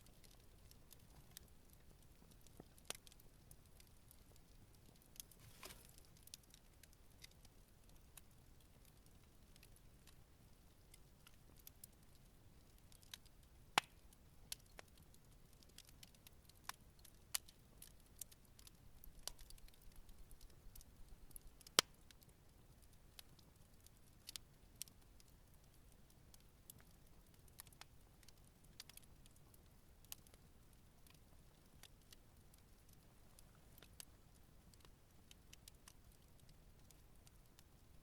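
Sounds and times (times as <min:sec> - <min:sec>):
wood fire crackling: 0:00.0 - 0:38.0
faint hiss: 0:05.3 - 0:06.1.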